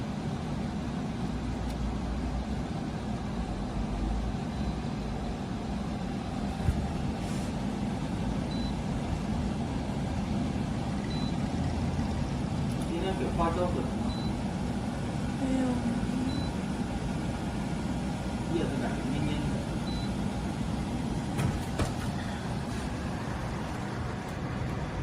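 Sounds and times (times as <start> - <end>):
air conditioner compressor and fan: 0.0 - 25.0.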